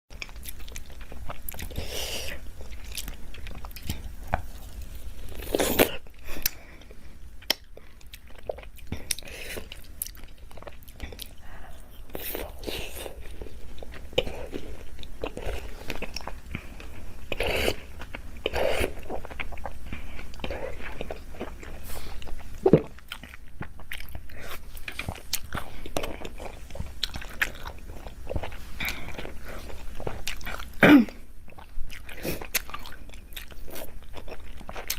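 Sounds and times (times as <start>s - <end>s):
person biting and chewing lemon: 0.2s - 6.6s.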